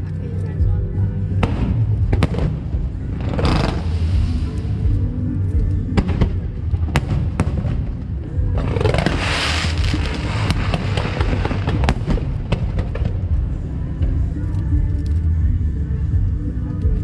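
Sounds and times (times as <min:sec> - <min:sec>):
fireworks crackling hiss: 0:03.3 - 0:04.8, 0:08.6 - 0:13.3
fireworks bangs: 0:08.6 - 0:13.3.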